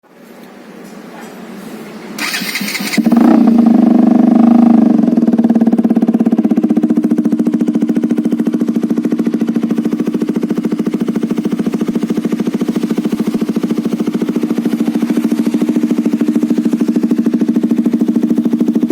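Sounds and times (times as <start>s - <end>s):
motorcycle engine cranking: 2.2s - 3.6s
motorcycle engine idling: 2.2s - 18.9s.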